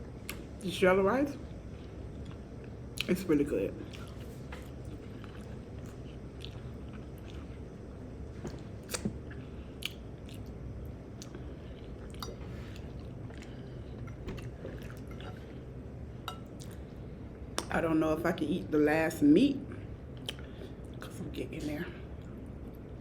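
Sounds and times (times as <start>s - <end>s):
person chewing food: 1.8s - 3.1s, 3.8s - 17.7s, 20.2s - 21.1s
wet mouth clicks and smacks: 8.5s - 9.1s, 9.8s - 10.5s, 20.2s - 20.5s.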